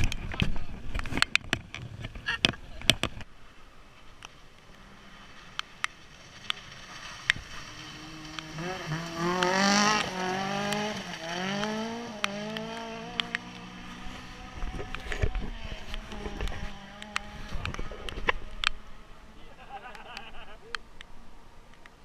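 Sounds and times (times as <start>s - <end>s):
car engine accelerating: 4.6s - 19.6s
sharp clicks: 11.6s - 13.7s, 14.7s - 18.8s.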